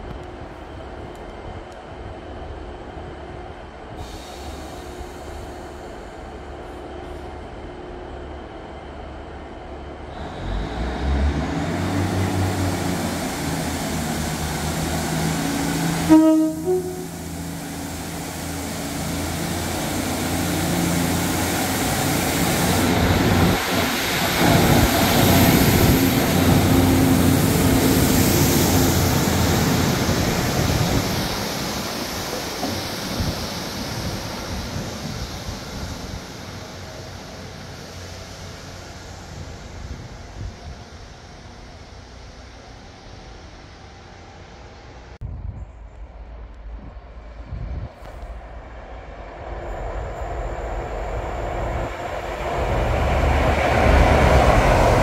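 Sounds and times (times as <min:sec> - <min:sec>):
train wheel noise: 0:00.0 - 0:45.1, 0:46.1 - 0:55.0
diesel train engine: 0:00.0 - 0:55.0
two-note train horn: 0:16.0 - 0:17.4.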